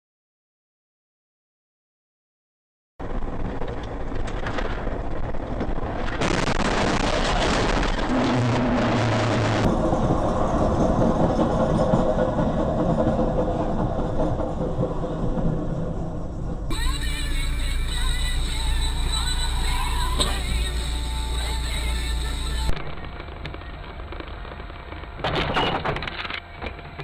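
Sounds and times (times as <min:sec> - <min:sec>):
car engine and road noise: 0:07.6 - 0:12.3, 0:16.0 - 0:27.0.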